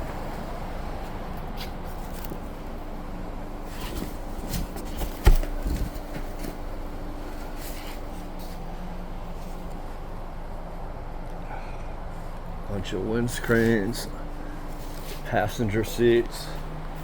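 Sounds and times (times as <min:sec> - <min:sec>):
steady low hum: 0:00.0 - 0:17.0
rummaging through boxed parts: 0:03.6 - 0:08.6.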